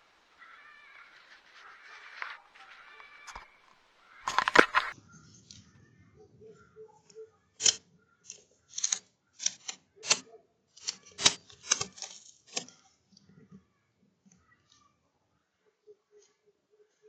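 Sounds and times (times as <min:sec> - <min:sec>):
short sharp clicks and scrapes: 0:03.0 - 0:05.0, 0:10.8 - 0:12.8.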